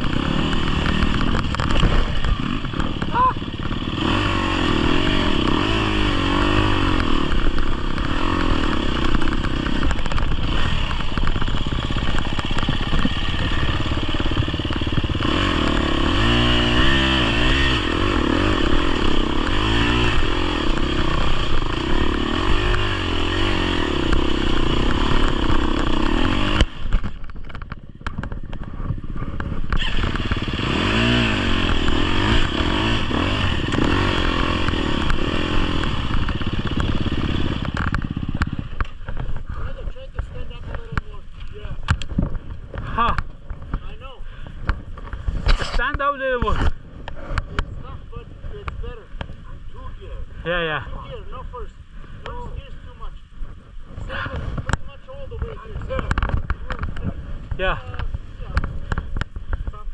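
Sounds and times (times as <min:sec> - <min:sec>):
chassis clatter: 0:00.0 - 0:39.6
dirt bike engine revving: 0:00.0 - 0:51.3, 0:53.4 - 0:59.6.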